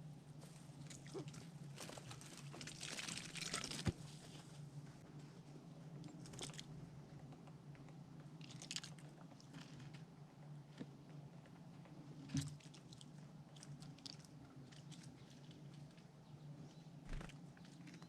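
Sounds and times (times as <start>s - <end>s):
squirrel gnawing and crunching: 0.6s - 4.0s, 6.0s - 16.2s.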